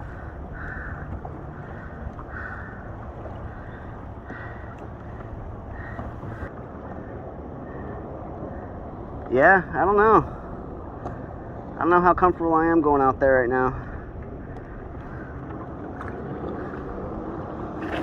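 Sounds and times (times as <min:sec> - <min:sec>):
water moving around kayak: 0:00.0 - 0:18.0
wind rumbling on microphone: 0:00.0 - 0:18.0
soft water splash: 0:17.6 - 0:18.0.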